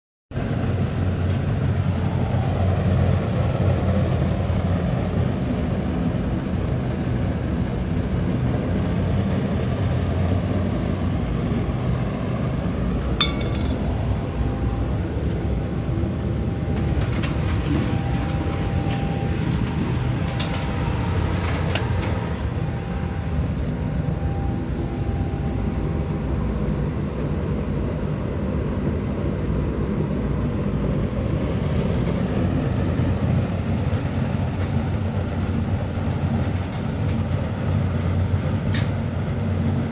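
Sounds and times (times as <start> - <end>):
burner flame and blower rumble: 0.3 - 39.9
metal clink: 13.2 - 14.0.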